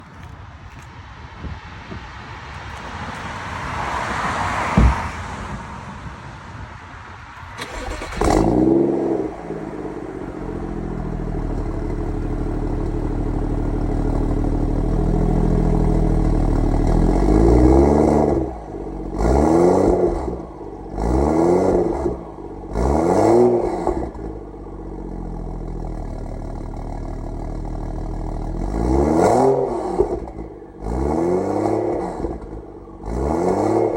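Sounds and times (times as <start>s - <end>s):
car engine starting and revving: 7.4s - 33.9s.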